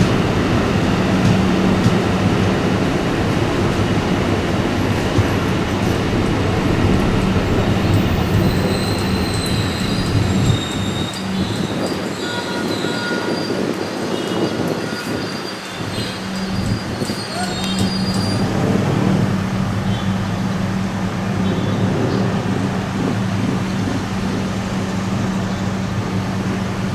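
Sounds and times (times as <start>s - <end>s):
train rumbling on rails: 0.0s - 26.9s
high-pitched wheel squeal: 7.8s - 19.2s.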